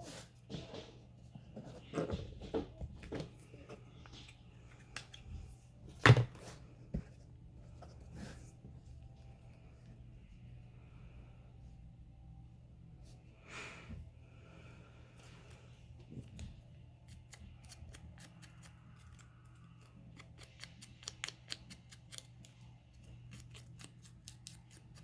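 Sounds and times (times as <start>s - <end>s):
scissors snipping: 17.1s - 22.5s.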